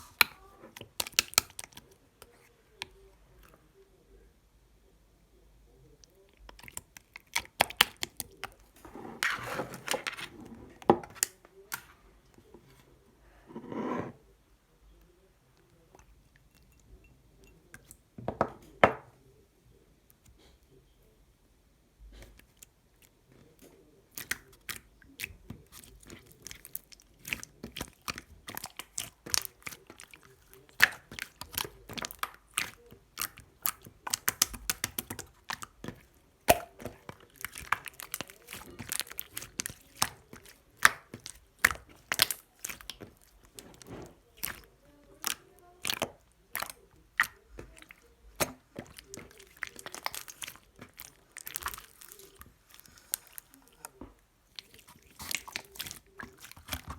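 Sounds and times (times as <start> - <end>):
slime squishing and popping: 0.0 - 1.8, 6.5 - 8.6, 24.1 - 56.9.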